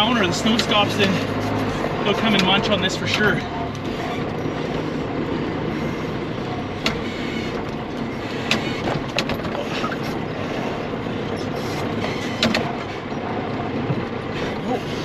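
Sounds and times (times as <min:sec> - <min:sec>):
sharp clicks and knocks: 0:00.4 - 0:05.0, 0:06.7 - 0:10.3, 0:11.4 - 0:14.6.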